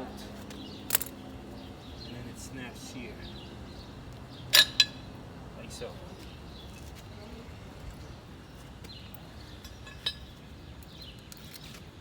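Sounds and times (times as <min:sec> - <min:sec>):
metal parts clicking and tapping: 0:00.9 - 0:01.2.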